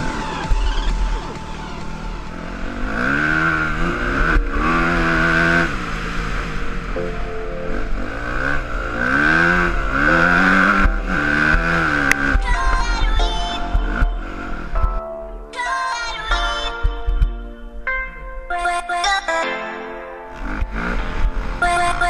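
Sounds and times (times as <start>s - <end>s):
motocross bike engine revving: 0.0s - 7.0s, 7.7s - 14.8s, 20.3s - 22.0s
music: 0.0s - 22.0s.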